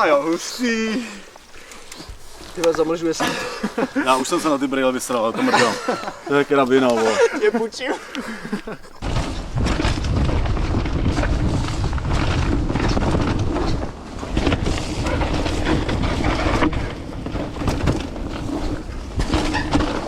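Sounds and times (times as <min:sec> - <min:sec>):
bike knocks and rattles: 0:09.0 - 0:20.0
wind buffeting microphone: 0:09.0 - 0:20.0.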